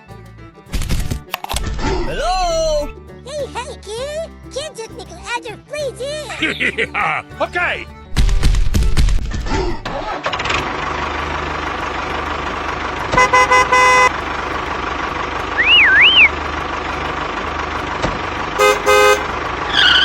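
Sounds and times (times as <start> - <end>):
vehicle engine running: 7.5 - 20.0
truck horn: 9.9 - 20.0
whistle swooping up and down: 15.6 - 16.4.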